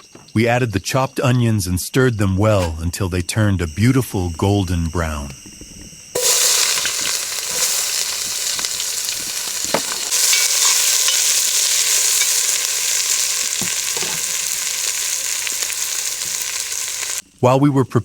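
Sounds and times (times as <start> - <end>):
onions sizzling in oil: 6.1 - 17.3.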